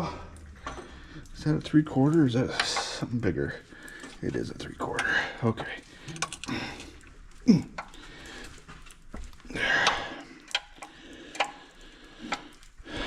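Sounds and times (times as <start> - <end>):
wrench clicking on metal bolts: 6.1 - 6.5.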